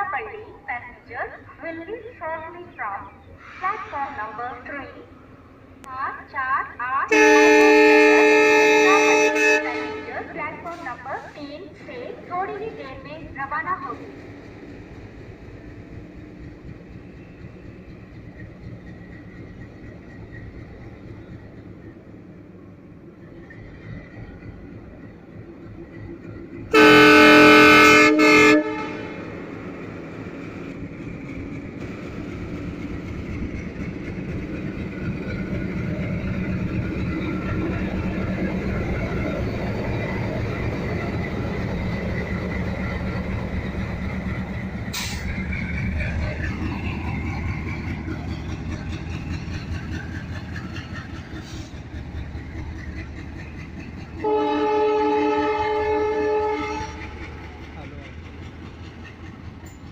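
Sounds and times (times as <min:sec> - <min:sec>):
locomotive horn: 0:07.1 - 0:10.9, 0:26.7 - 0:29.6, 0:54.2 - 0:57.2.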